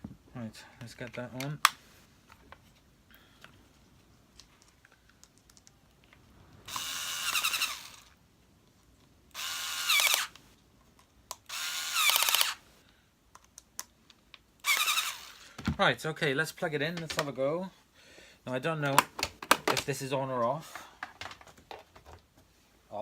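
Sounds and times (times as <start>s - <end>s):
power screwdriver running: 6.7s - 8.2s, 9.3s - 10.3s, 11.5s - 12.6s, 14.6s - 15.5s.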